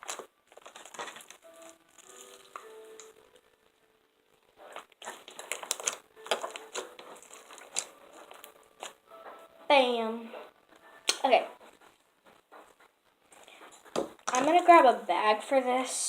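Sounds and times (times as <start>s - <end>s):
slime squished wet crackles: 0.0s - 3.4s, 4.7s - 9.0s.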